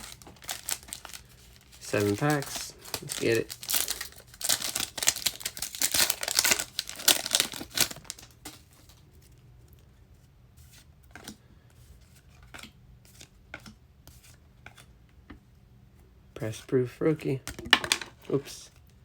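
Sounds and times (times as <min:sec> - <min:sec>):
card packaging tearing and crinkling: 0:00.0 - 0:09.0.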